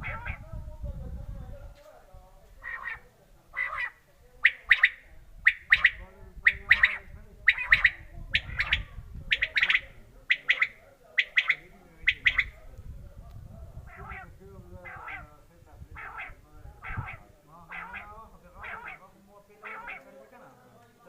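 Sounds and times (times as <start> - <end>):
quail calling: 0.0 - 0.4, 2.6 - 12.6, 13.8 - 15.3, 15.9 - 20.2.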